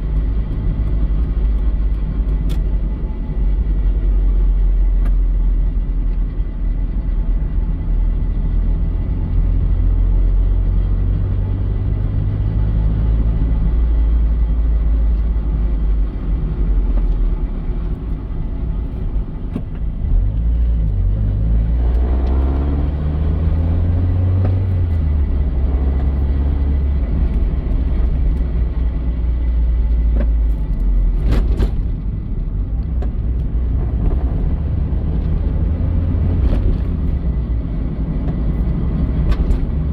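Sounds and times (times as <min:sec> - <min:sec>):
car engine rumbling: 0:00.0 - 0:39.9.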